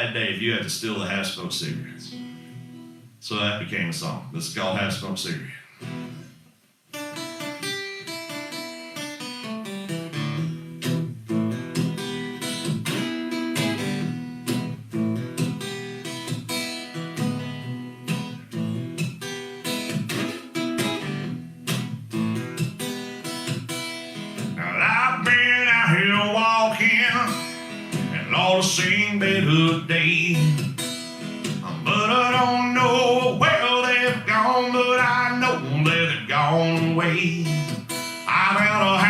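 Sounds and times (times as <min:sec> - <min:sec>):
acoustic guitar playing: 0:00.0 - 0:39.0
man singing: 0:24.6 - 0:30.7, 0:31.6 - 0:39.0.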